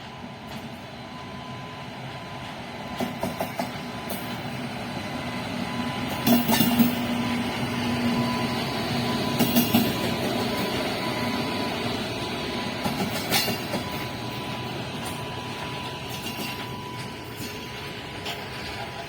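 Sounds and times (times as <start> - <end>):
train approaching: 0.0 - 19.0
wheels clicking over rail joints: 6.1 - 7.4, 9.2 - 11.2, 12.7 - 19.0.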